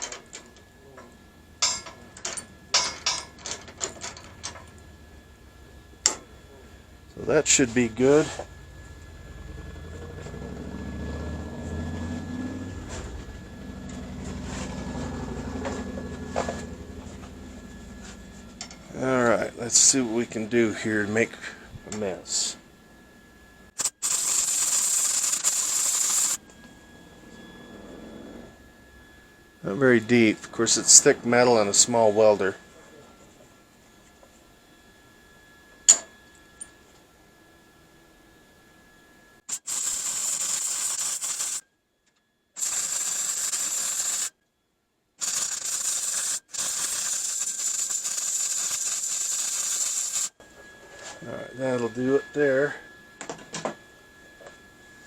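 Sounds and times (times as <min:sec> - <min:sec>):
welder arc crackling and hissing: 0:06.0 - 0:10.3, 0:18.6 - 0:22.6, 0:23.7 - 0:26.4, 0:39.4 - 0:41.6, 0:42.6 - 0:44.4, 0:45.2 - 0:50.4.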